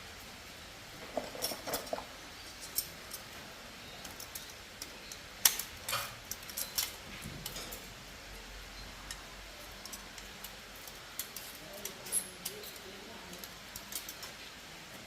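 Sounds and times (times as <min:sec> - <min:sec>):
light metallic clinks: 0:01.1 - 0:07.9, 0:08.7 - 0:14.4.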